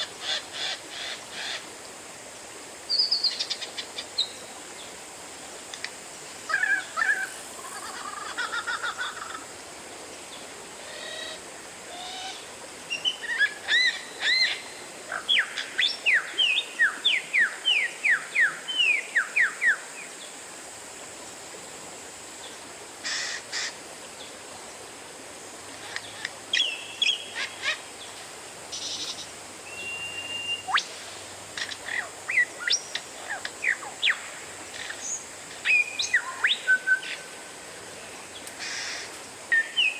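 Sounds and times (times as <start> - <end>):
faint high hiss: 0.0 - 39.9
bird singing whistled phrases: 29.7 - 30.9, 39.5 - 39.9.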